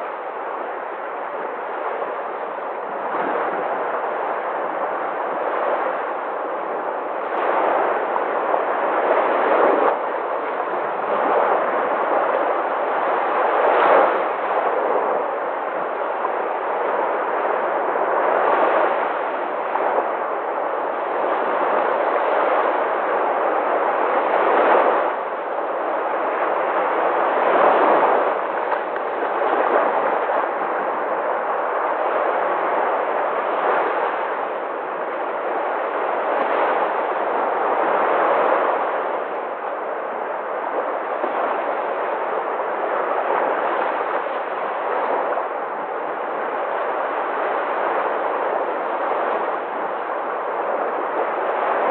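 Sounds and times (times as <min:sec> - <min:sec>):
sea waves breaking on shore: 0:00.0 - 0:51.9.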